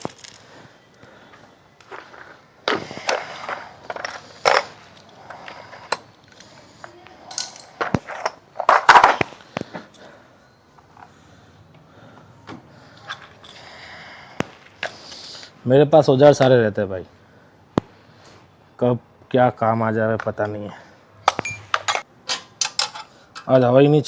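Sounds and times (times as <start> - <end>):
metal hand tools clinking: 0.0 - 0.4, 3.1 - 6.5, 7.3 - 9.3, 21.3 - 23.5.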